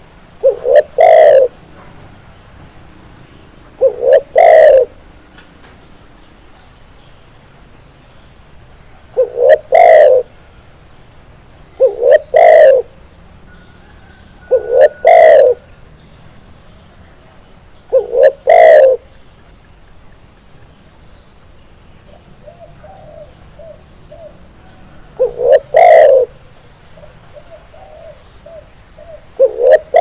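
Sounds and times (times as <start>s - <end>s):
dove cooing: 0.4s - 1.6s, 3.7s - 5.0s, 9.1s - 10.4s, 11.8s - 15.7s, 17.9s - 19.2s, 22.1s - 30.0s.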